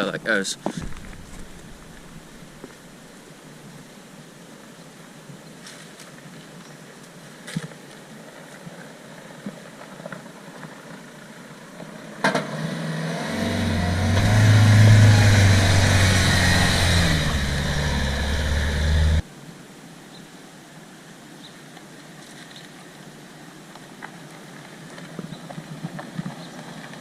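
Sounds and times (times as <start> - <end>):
off-road vehicle engine under load: 12.2 - 19.2.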